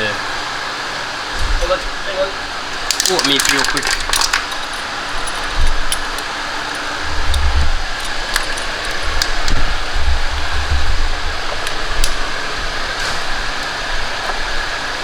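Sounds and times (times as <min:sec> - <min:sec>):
fan-like hiss: 0:00.0 - 0:15.0
low handling thumps: 0:06.8 - 0:13.6.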